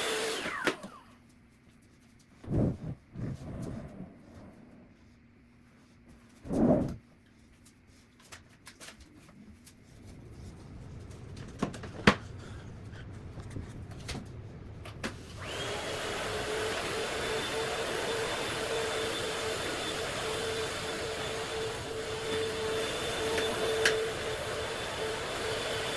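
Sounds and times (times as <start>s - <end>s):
vacuum cleaner whining: 0.0s - 1.2s, 10.1s - 25.9s
knocks and clicks of handling: 11.1s - 12.6s.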